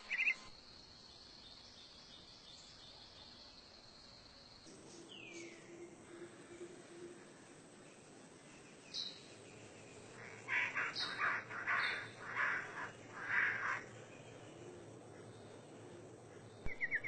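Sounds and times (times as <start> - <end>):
bird calling: 0.0 - 0.5, 10.1 - 17.0.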